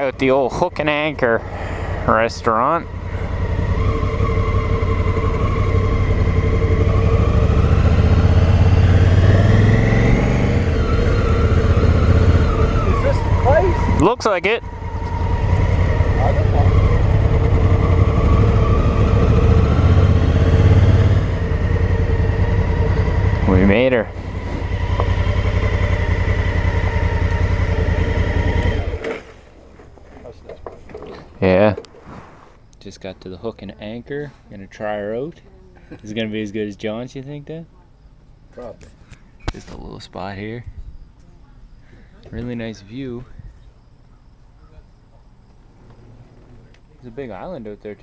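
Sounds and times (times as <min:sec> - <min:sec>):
motorcycle engine running: 0:00.0 - 0:29.3.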